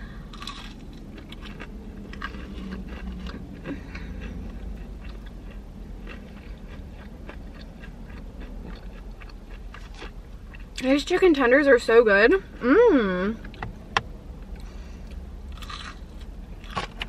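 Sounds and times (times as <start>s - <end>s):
chewing crunchy fried chicken: 0.2s - 10.8s, 14.6s - 17.0s.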